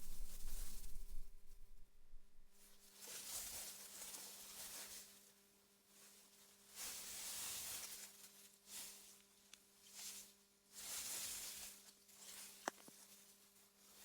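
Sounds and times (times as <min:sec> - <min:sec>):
wind through grass: 0:00.0 - 0:02.6
faint low hum: 0:00.0 - 0:02.8.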